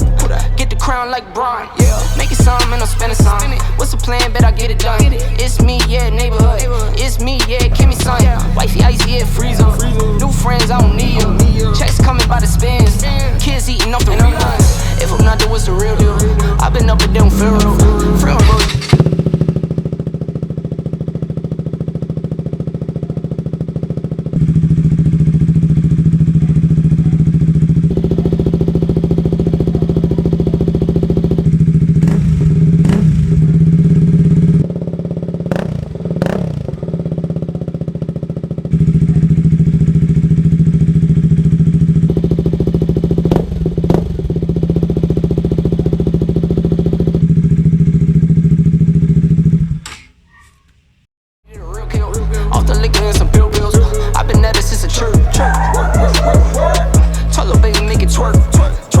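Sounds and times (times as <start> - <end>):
motorcycle engine running: 0.0 - 1.1, 1.8 - 49.9, 51.5 - 59.0
motorcycle throttle blips: 2.5 - 59.0.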